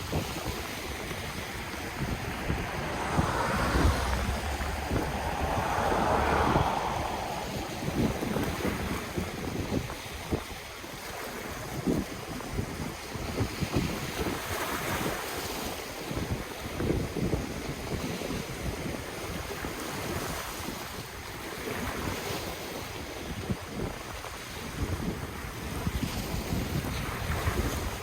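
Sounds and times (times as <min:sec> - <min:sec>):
ocean waves washing onto shore: 0:00.0 - 0:13.0
wind buffeting microphone: 0:00.0 - 0:15.2.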